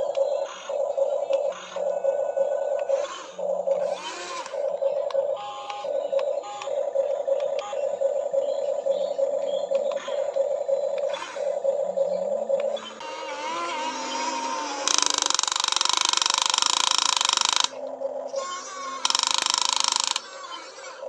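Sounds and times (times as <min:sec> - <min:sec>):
electric hydraulic pump whine: 0:12.8 - 0:21.0.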